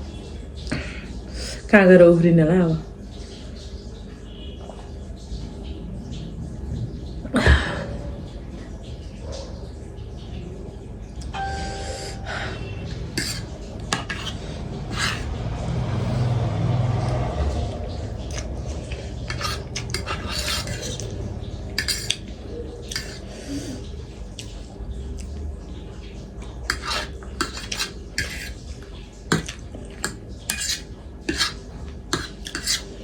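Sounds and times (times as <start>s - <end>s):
low steady hum: 0.0s - 33.0s
cutlery clinking on a plate: 21.8s - 22.2s, 26.7s - 28.6s.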